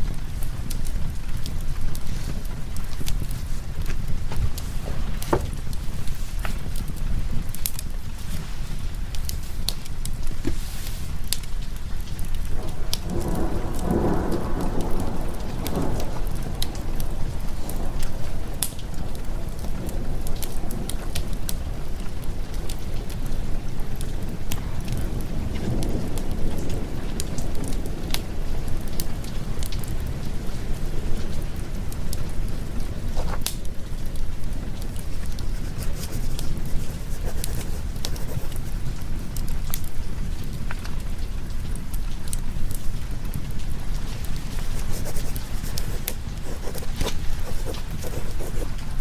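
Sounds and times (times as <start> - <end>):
steady rain: 0.0 - 49.0
wood fire crackling: 0.0 - 49.0
thunder rolling: 12.4 - 39.3, 42.9 - 49.0.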